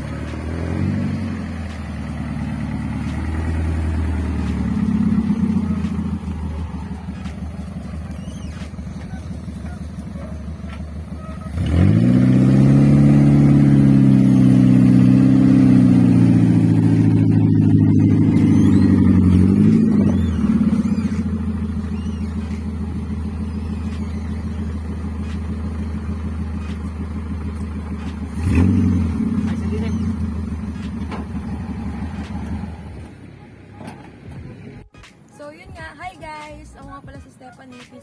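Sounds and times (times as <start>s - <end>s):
jeep engine revving: 0.0s - 35.0s.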